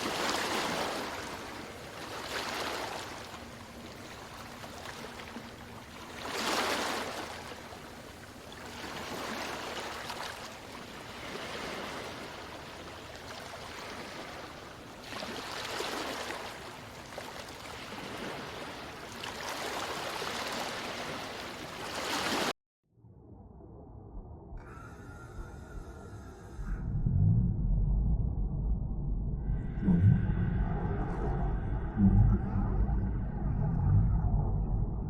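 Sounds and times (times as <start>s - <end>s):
rushing water: 0.0s - 22.5s.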